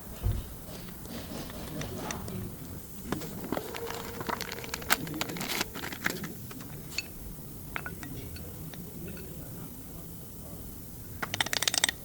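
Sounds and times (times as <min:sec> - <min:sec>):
faint scrape: 0:00.2 - 0:06.3
metal tools clinking: 0:03.0 - 0:09.4.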